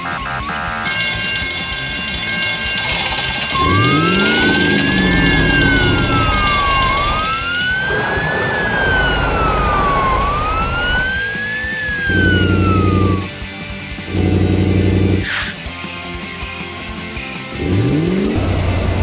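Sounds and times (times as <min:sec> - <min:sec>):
wailing siren sound effect: 0:00.0 - 0:13.4
deep loud tone: 0:00.8 - 0:11.2.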